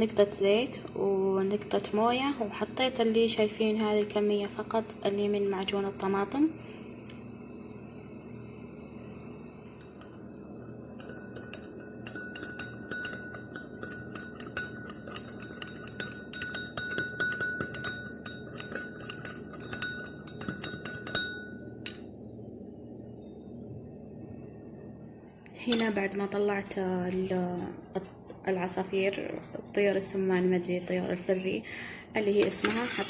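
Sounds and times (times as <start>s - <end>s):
metal spoon clinking against bowl: 9.8s - 22.1s.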